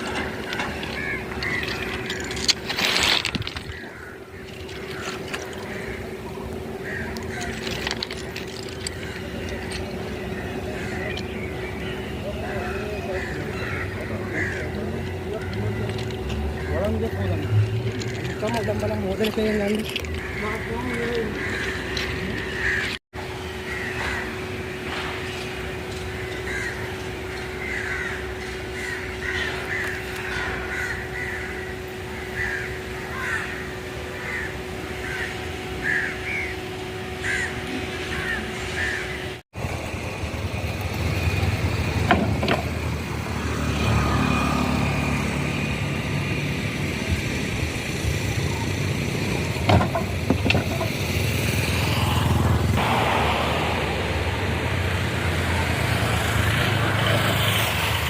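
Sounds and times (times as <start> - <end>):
bird calling: 0.0 - 39.4
heavy engine rumbling: 0.0 - 58.0
steady mechanical hum: 0.0 - 58.0.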